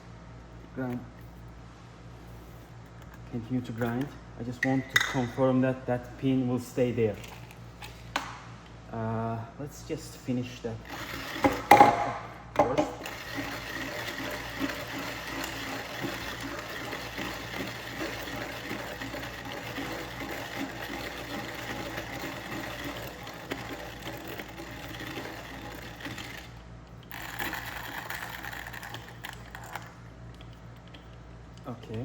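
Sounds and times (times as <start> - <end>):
hand coffee grinder crushing beans: 10.9 - 30.0.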